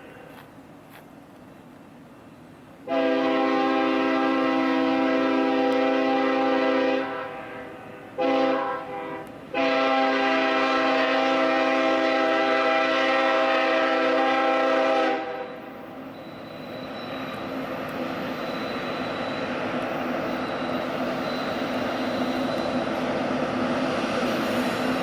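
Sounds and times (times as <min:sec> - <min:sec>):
train rumble: 0:00.0 - 0:25.0
locomotive air horn blasts: 0:02.9 - 0:15.6.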